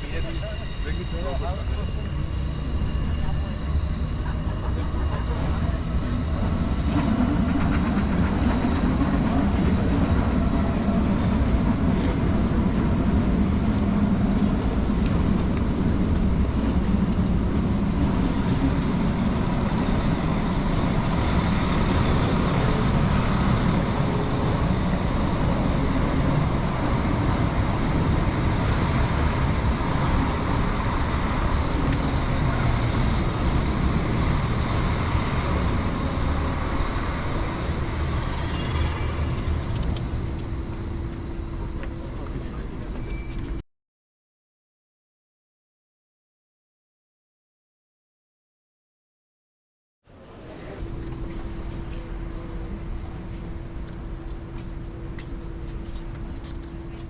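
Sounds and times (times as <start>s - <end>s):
low rumble of vehicle noise: 8.6s - 43.6s.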